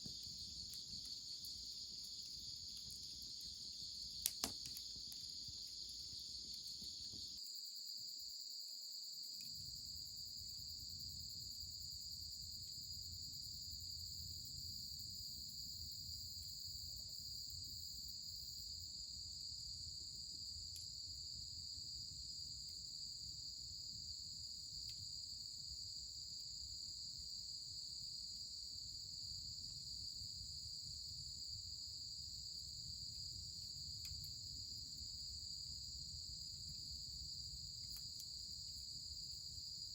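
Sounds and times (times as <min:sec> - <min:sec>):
crickets trilling: 0:00.0 - 0:18.8
faint clicks: 0:04.2 - 0:06.9.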